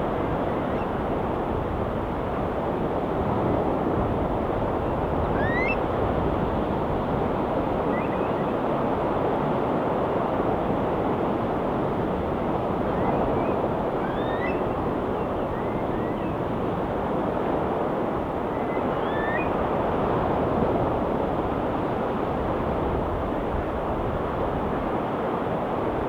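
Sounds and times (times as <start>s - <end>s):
bird calling: 5.2s - 5.9s, 7.8s - 8.6s, 12.8s - 16.4s, 18.5s - 19.6s
faint bird chirps: 5.4s - 5.8s, 7.9s - 8.5s, 13.0s - 16.4s, 18.5s - 19.6s.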